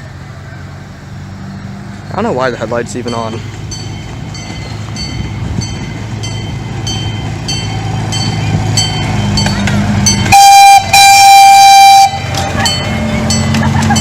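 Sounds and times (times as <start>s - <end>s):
miniature train engine hum: 0.0s - 14.0s
train horn blasts: 10.0s - 13.3s
bell dinging: 12.3s - 14.0s.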